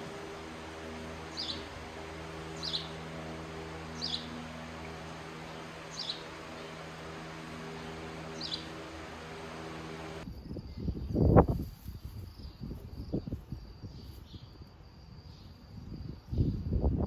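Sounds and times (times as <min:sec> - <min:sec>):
bird chirping: 0:00.0 - 0:10.2
steady low hum: 0:00.0 - 0:10.3.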